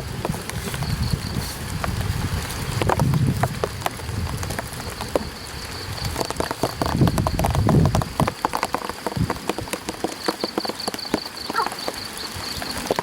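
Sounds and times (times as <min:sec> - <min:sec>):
rain pattering on an umbrella: 0:00.0 - 0:13.0.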